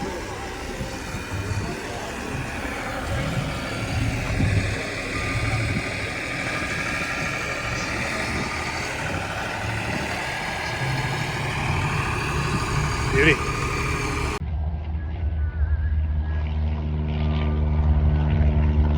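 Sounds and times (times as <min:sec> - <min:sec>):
car engine idling: 0:00.0 - 0:14.4.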